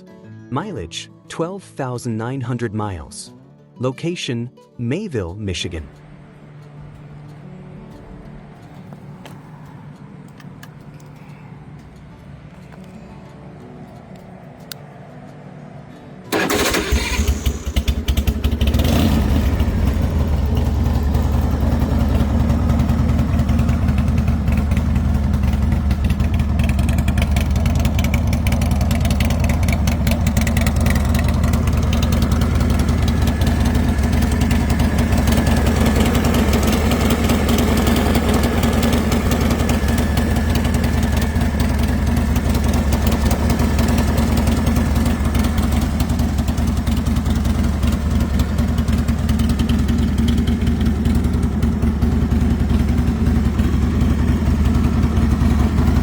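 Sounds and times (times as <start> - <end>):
motorcycle engine idling: 16.3 - 56.0.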